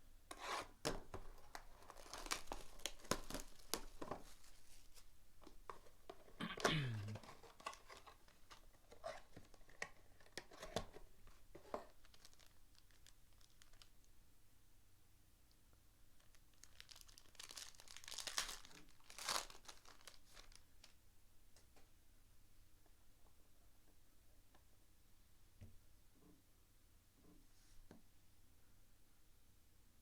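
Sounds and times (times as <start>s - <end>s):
packaging tearing and crinkling: 1.4s - 4.2s, 11.7s - 13.9s, 16.2s - 20.9s.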